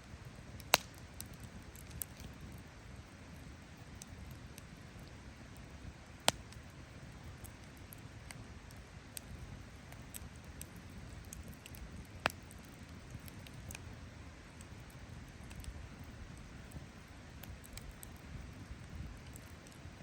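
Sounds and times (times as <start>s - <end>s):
campfire crackling: 0.0s - 20.0s
low rumble of fire: 0.0s - 20.0s
sharp fire pops: 0.6s - 2.5s, 6.2s - 6.7s, 9.2s - 13.8s.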